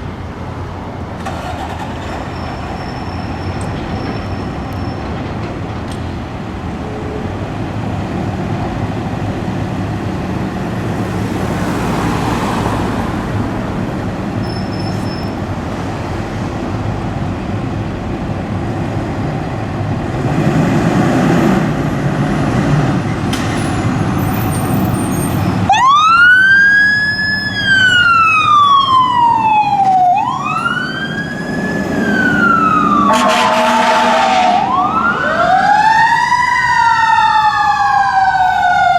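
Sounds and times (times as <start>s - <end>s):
road traffic: 0.0s - 38.9s
emergency siren wailing: 25.6s - 38.9s
horn blast: 33.0s - 34.8s.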